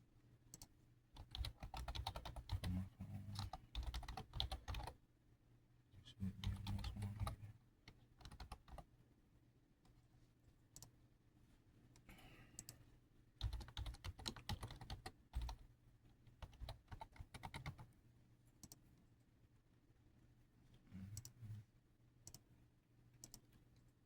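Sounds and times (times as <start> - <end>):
faint steady hum: 0.0 - 24.0
keyboard typing clicks: 0.5 - 4.9, 6.4 - 7.4, 8.2 - 8.8, 13.4 - 15.6, 16.4 - 17.9, 22.2 - 22.4, 23.2 - 23.5.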